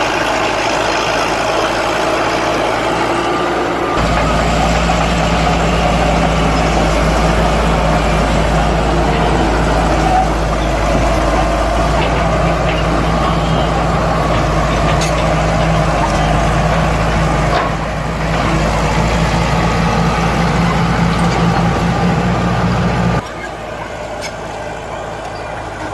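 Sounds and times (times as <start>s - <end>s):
heavy diesel engine running: 0.0s - 25.9s.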